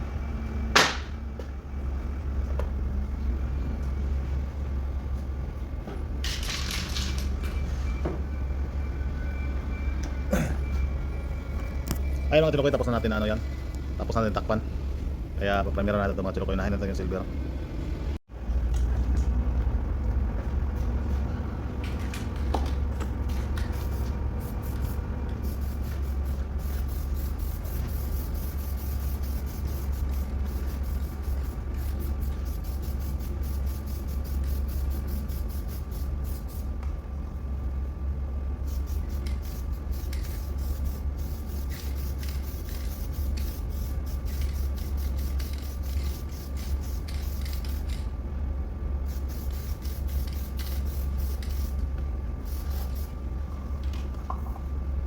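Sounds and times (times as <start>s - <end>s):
steady low hum: 7.2s - 55.0s
spray gun hissing: 23.7s - 36.7s, 38.6s - 47.7s, 49.1s - 51.8s, 52.4s - 53.2s.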